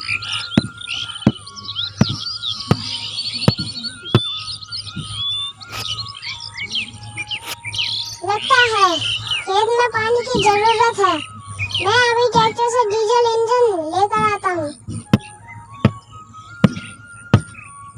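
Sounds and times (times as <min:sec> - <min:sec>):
birds chirping and tweeting: 0:00.0 - 0:17.9.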